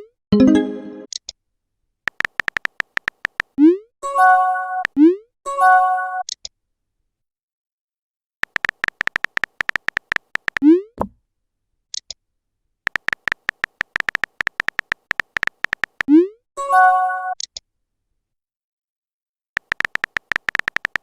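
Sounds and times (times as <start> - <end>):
keyboard typing clicks: 2.1 - 3.6, 8.4 - 10.7, 12.9 - 16.2, 19.6 - 21.0.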